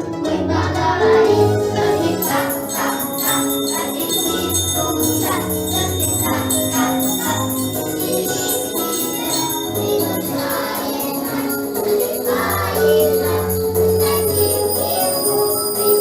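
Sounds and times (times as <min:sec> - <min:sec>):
music with sleigh bells: 0:00.1 - 0:16.0.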